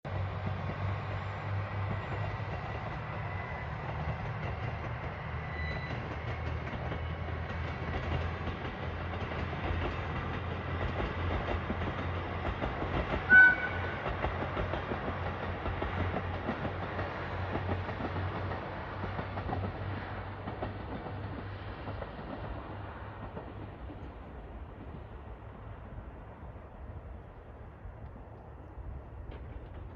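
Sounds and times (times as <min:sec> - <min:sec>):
diesel train engine drone: 0:00.0 - 0:29.9
rail noise: 0:00.1 - 0:29.9
train horn: 0:13.3 - 0:14.2.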